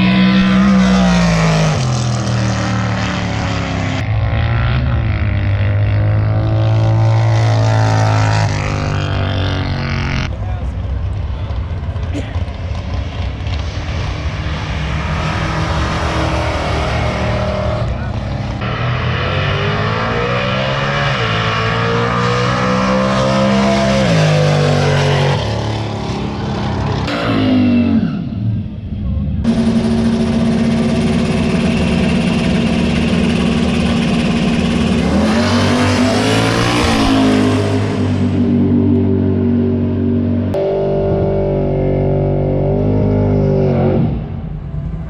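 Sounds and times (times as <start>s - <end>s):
drag car engines revving: 0.0s - 45.0s
engine idling: 29.4s - 35.3s.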